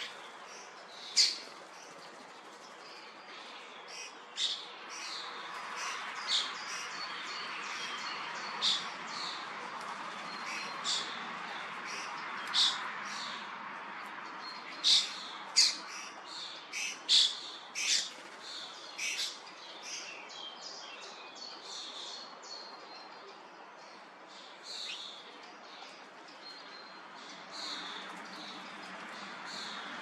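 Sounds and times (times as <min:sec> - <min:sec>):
starlings chirping and squawking: 0:00.0 - 0:02.1, 0:03.9 - 0:09.6, 0:10.2 - 0:13.4, 0:14.5 - 0:20.1.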